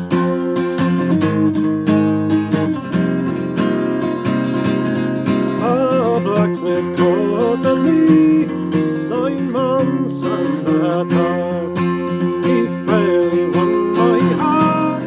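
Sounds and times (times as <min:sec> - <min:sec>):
acoustic guitar folk tune: 0:00.0 - 0:15.0
sliding melody line: 0:09.1 - 0:15.0.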